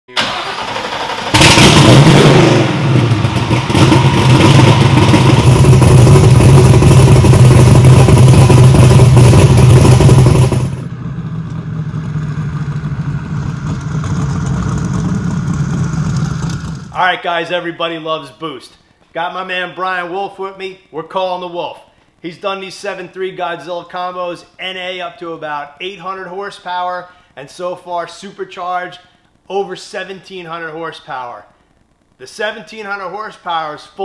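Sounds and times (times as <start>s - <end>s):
engine running loudly: 1.3s - 16.9s.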